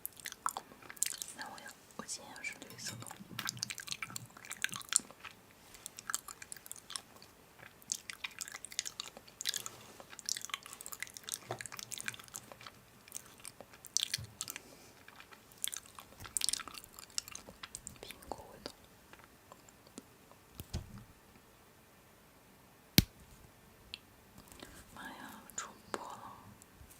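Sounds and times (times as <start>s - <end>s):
person chewing crunchy food: 0.0s - 1.3s, 3.0s - 18.0s.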